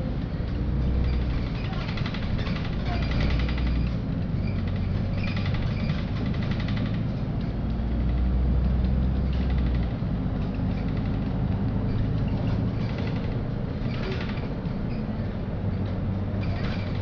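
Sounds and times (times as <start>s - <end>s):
bus engine drone: 0.0s - 17.0s
fast light rattle: 1.0s - 7.2s.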